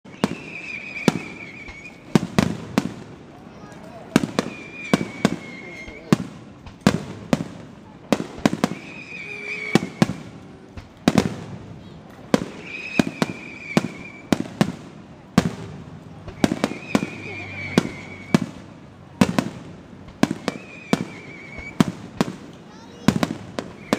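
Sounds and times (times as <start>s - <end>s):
high thin whistle: 0.0s - 2.1s, 4.4s - 6.1s, 8.7s - 10.4s, 12.6s - 14.3s, 16.3s - 18.4s, 20.4s - 21.8s
firework shells bursting: 0.0s - 23.9s.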